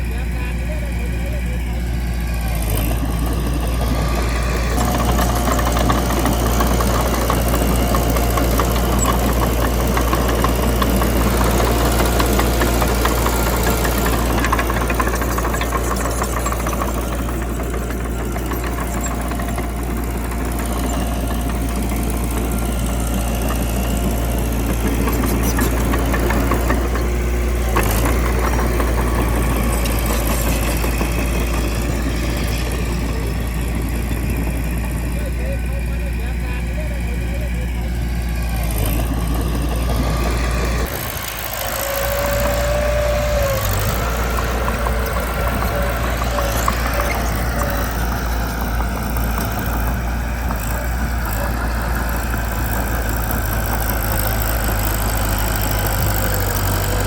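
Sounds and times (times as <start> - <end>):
bulldozer diesel engine clattering: 0.0 - 57.0.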